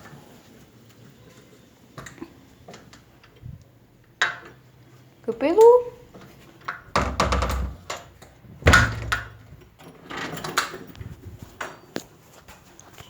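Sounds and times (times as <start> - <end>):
knocks and thumps: 6.9 - 7.9, 8.6 - 9.6.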